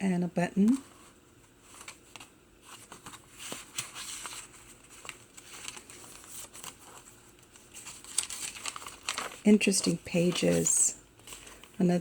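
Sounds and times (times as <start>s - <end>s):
paper pages rustling and crinkling: 0.7s - 12.0s.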